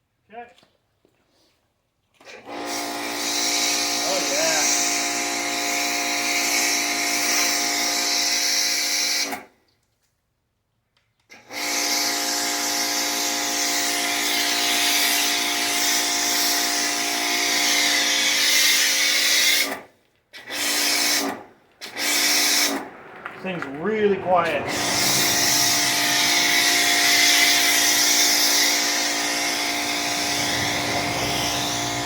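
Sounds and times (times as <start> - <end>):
pressure washer motor humming: 2.5 - 8.3, 11.8 - 19.8, 20.4 - 32.0
water spray hiss: 24.7 - 32.0.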